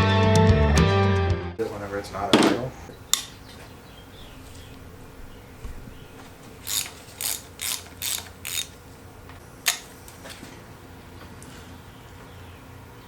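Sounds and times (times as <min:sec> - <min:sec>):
ratchet wrench clicking: 0:06.6 - 0:08.8, 0:09.6 - 0:10.2.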